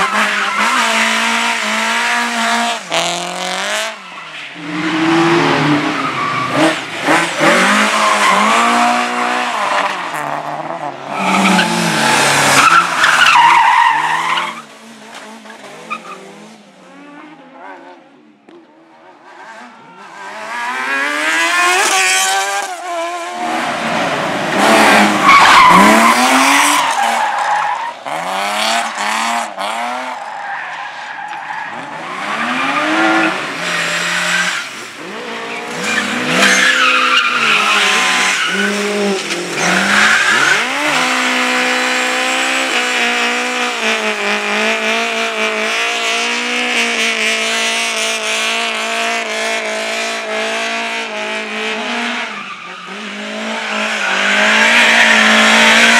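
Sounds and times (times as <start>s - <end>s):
car engines revving hard: 0.0s - 18.2s, 19.2s - 30.5s, 31.1s - 55.9s
tyres squealing on tarmac: 11.1s - 14.6s, 25.1s - 28.1s, 35.4s - 41.4s.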